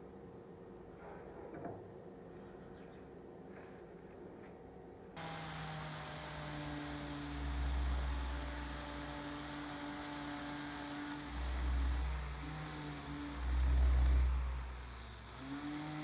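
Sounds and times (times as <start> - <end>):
electric motor humming: 5.2 - 16.0.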